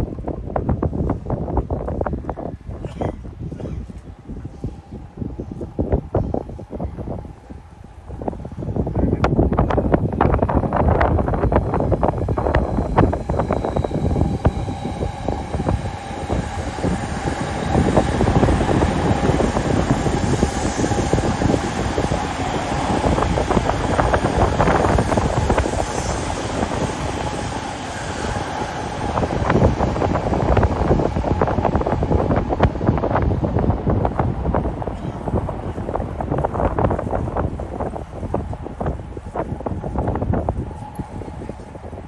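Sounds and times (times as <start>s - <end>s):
electric train running on tracks: 0.0s - 42.0s
wind buffeting microphone: 0.0s - 42.0s.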